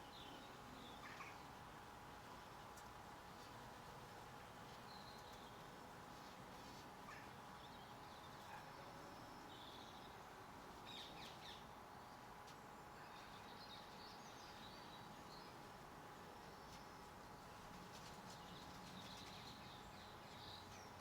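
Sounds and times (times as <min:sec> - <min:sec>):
small birds chirping: 0:07.1 - 0:21.0.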